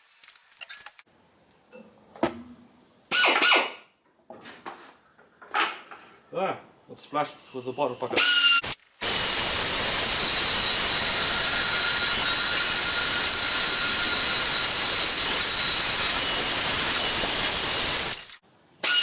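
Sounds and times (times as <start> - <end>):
bandsaw cutting steel: 7.5 - 19.0.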